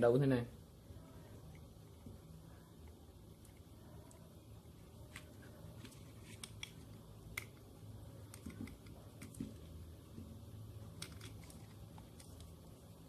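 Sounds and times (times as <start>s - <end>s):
low steady hum: 0.0s - 13.0s
small parts clicking and tapping: 5.0s - 10.3s, 10.9s - 12.6s.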